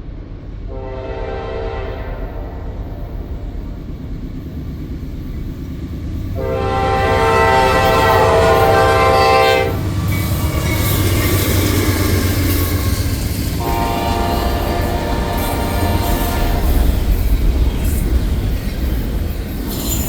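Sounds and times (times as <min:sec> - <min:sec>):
train rumble: 0:00.0 - 0:20.0
train horn blasts: 0:00.7 - 0:03.6, 0:06.4 - 0:10.0, 0:13.6 - 0:17.0.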